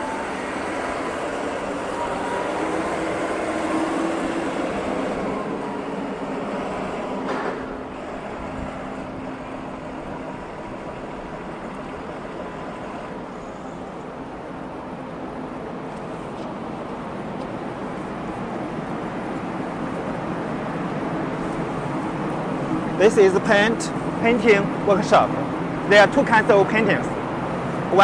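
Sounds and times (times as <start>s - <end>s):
workshop machinery noise: 0.0s - 13.5s.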